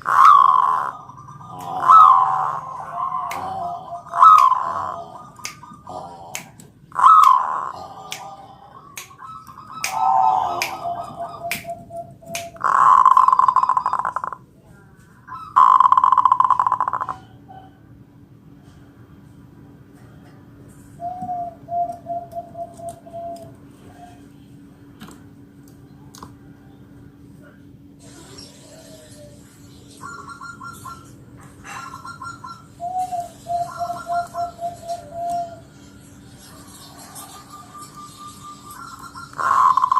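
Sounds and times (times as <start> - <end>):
dove cooing: 0.0 - 14.4, 15.3 - 17.9, 21.0 - 24.2, 30.0 - 39.9
rolling pulsed coos: 0.0 - 14.4.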